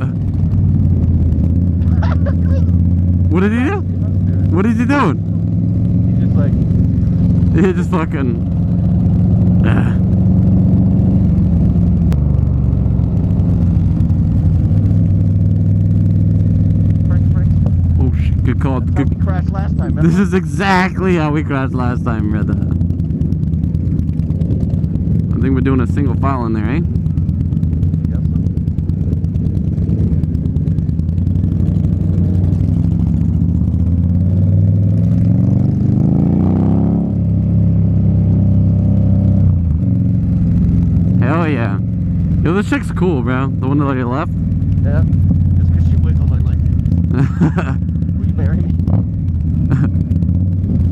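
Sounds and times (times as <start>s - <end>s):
motorcycle engine at low revs: 0.0s - 50.9s.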